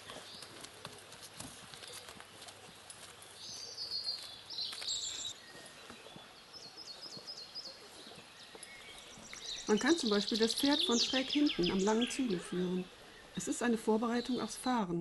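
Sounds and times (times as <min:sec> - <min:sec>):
songbirds singing: 0:00.0 - 0:00.8, 0:01.8 - 0:15.0
horse hoof steps on dirt path: 0:00.0 - 0:10.1
faint outdoor ambience: 0:00.0 - 0:15.0.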